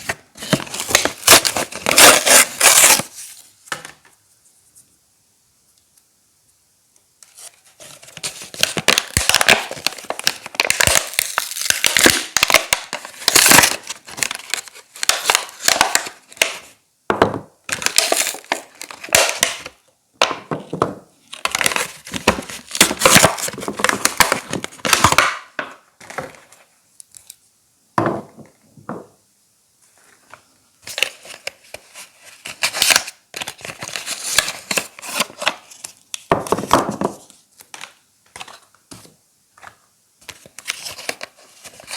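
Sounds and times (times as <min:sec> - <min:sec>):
wrappers crinkling and tearing: 0:00.0 - 0:03.3, 0:07.8 - 0:16.6, 0:21.4 - 0:25.3, 0:32.3 - 0:36.0.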